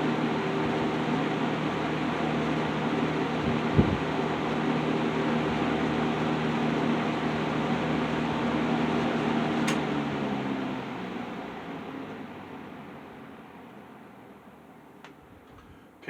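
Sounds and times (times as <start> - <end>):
box fan motor humming: 0.0 - 16.0
fan speed switch click: 9.6 - 9.9.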